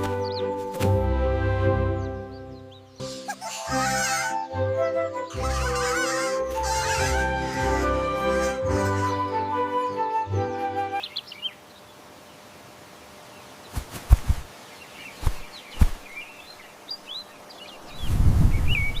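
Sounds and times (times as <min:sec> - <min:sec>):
small birds chirping: 0:00.0 - 0:00.8, 0:01.7 - 0:10.2, 0:11.0 - 0:19.0
music: 0:00.0 - 0:11.0
faint forest ambience: 0:00.0 - 0:19.0.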